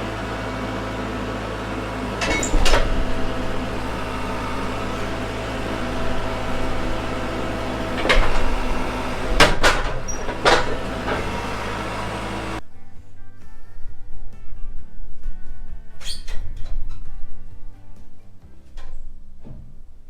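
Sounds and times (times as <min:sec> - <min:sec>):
engine running steadily: 0:00.0 - 0:12.6
sharp knocks or clanks: 0:02.0 - 0:12.6.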